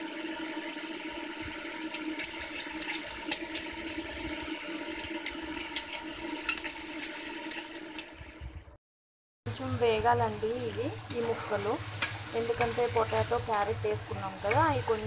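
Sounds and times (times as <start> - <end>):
vegetables sizzling in oil: 0.0 - 8.1, 9.5 - 15.0.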